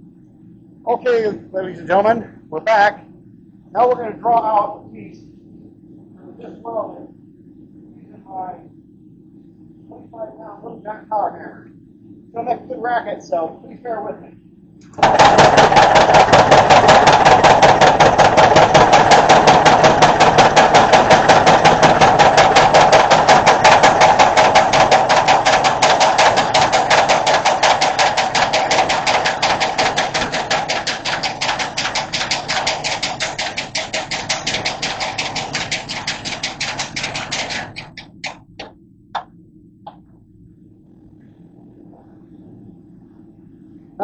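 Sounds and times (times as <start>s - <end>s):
power hammer pounding metal: 15.0s - 38.7s.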